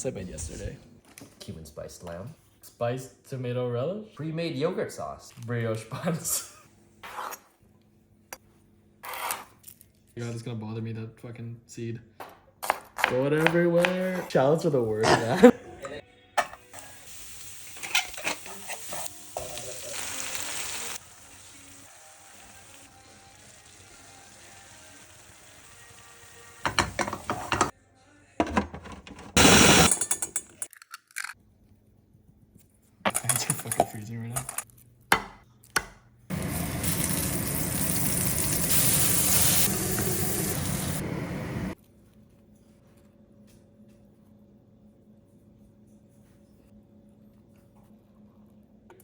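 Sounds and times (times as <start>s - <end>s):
food frying in oil: 16.8s - 27.6s, 36.3s - 41.0s
utensil knocking: 26.6s - 27.7s.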